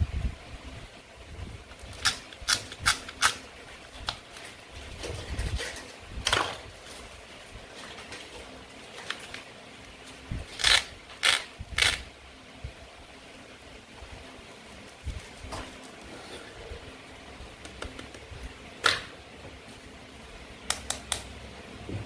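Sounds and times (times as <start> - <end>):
toy knife clicks and crunches: 1.9 - 3.4, 10.6 - 12.1.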